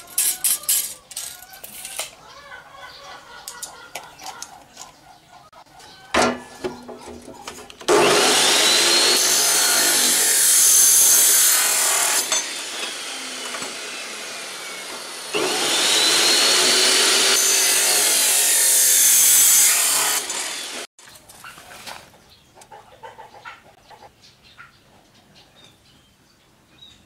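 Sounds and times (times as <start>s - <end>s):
angle grinder cutting steel: 7.9s - 20.9s.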